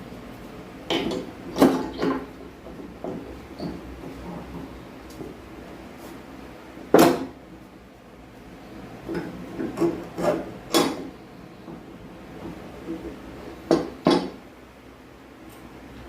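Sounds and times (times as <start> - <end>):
loud sharp knock: 7.0 - 7.3.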